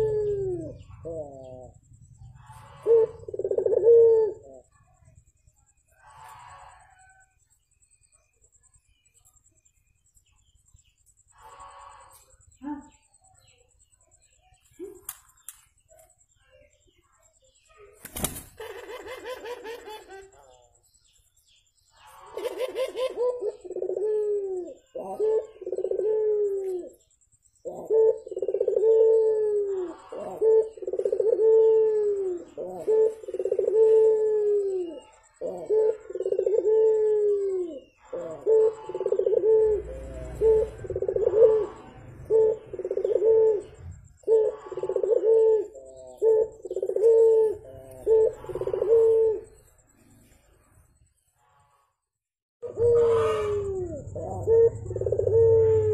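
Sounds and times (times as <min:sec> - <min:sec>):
dove cooing: 0:00.0 - 0:05.2, 0:18.4 - 0:20.4, 0:22.1 - 0:49.7, 0:52.6 - 0:55.9.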